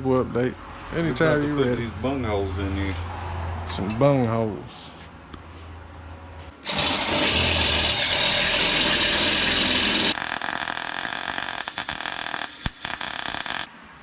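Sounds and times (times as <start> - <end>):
power tool on steel pipe: 6.6 - 13.7.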